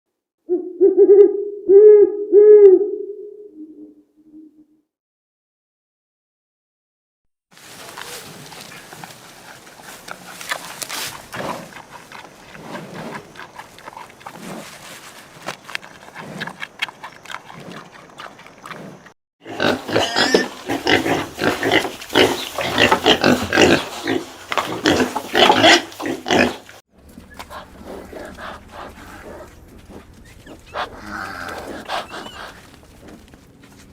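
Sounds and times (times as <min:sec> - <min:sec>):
pigs grunting and squealing: 0:16.0 - 0:33.3.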